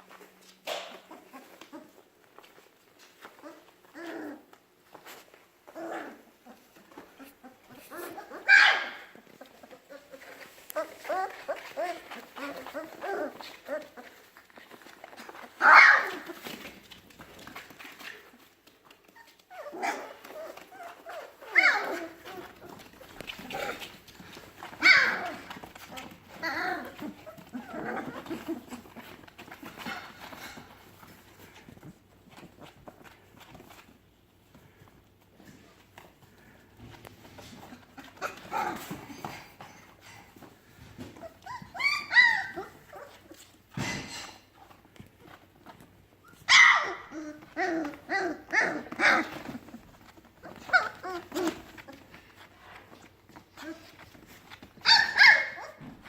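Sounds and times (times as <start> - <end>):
puppies whining and yelping: 1.0 - 2.0, 5.1 - 33.8, 37.2 - 44.4, 45.6 - 56.0
puppy yipping and barking: 8.0 - 9.3, 15.6 - 16.4, 19.2 - 22.5, 24.7 - 25.5, 41.2 - 43.2, 46.2 - 49.5, 54.8 - 55.9.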